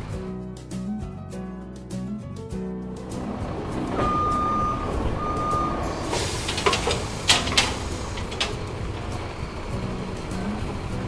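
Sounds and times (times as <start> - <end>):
truck engine rumbling: 2.5 - 11.0
reversing beeps: 4.0 - 5.8
hydraulic hiss: 5.9 - 8.6
clattering knocks of tipping load: 6.1 - 8.9.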